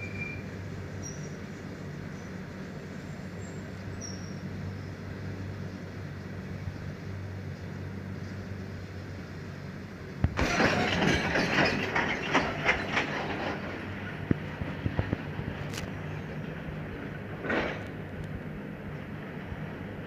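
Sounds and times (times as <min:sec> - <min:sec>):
train low hum: 0:00.0 - 0:20.0
wheels clattering over rail joints: 0:10.2 - 0:20.0.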